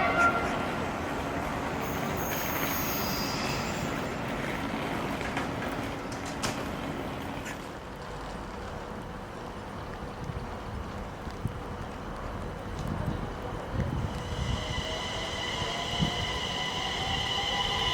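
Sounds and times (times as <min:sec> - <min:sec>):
train rumbling on rails: 0:00.0 - 0:17.9
high-pitched wheel squeal: 0:01.8 - 0:04.1, 0:14.2 - 0:17.9.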